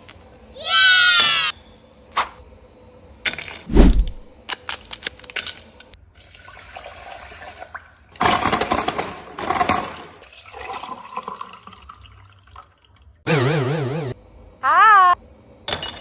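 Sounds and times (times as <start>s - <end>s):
liquid sloshing and gurgling: 9.4s - 12.9s.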